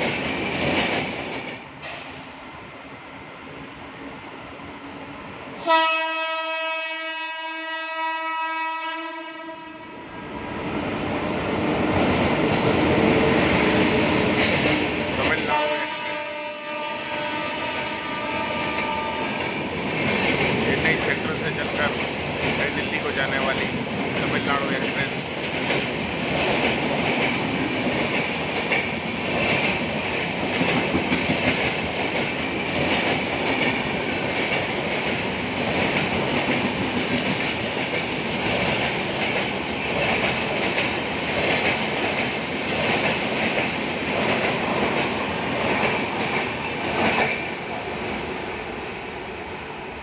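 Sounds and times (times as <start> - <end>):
train wheels clattering on rails: 0.0 - 2.3, 11.8 - 16.0, 17.1 - 47.6
train rumble: 0.0 - 5.7, 10.2 - 49.9.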